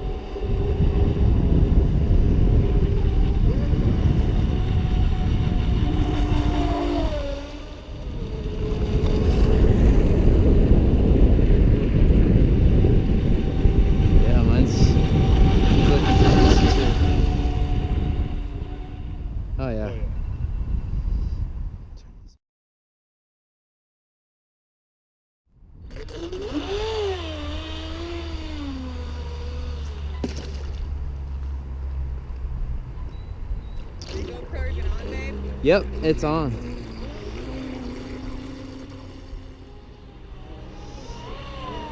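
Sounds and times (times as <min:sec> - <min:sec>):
electric motors whining: 0:00.0 - 0:19.9, 0:25.8 - 0:31.5, 0:33.1 - 0:41.9
low rumble: 0:00.0 - 0:22.4
wind noise on microphone: 0:00.0 - 0:22.4, 0:25.6 - 0:41.9.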